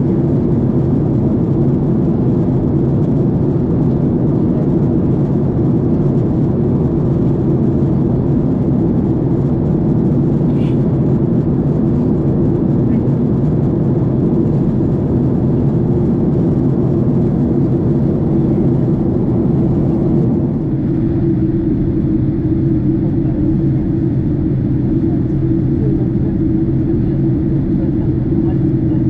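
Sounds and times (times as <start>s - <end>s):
jet engine cabin drone: 0.0s - 29.0s.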